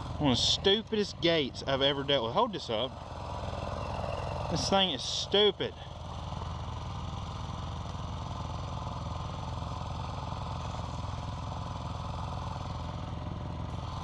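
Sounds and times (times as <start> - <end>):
dirt bike engine idling: 0.0 - 14.0.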